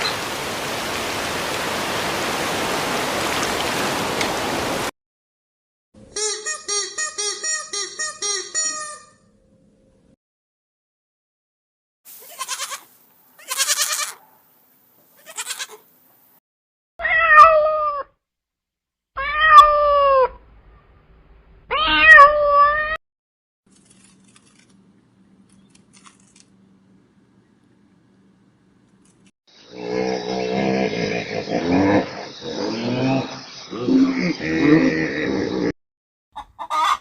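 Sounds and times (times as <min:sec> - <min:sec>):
cat meowing: 0:17.0 - 0:18.1, 0:19.2 - 0:20.4, 0:21.7 - 0:23.0.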